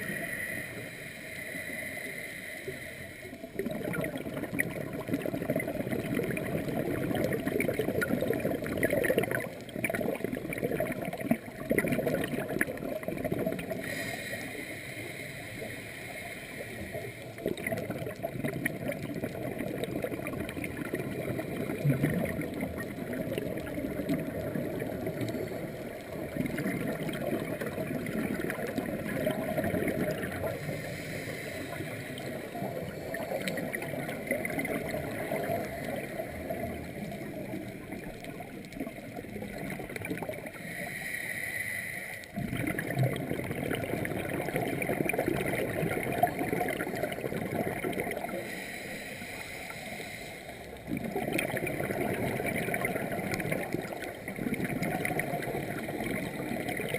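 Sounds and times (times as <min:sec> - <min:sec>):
underwater bubbling and gurgling: 0:00.0 - 0:56.9.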